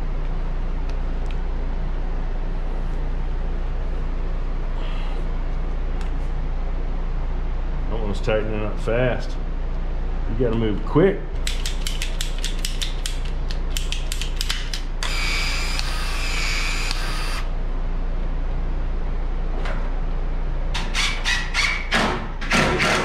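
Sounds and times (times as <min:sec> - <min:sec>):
steady mechanical noise: 0:00.0 - 0:23.0
expansion tool clicking: 0:16.8 - 0:17.4.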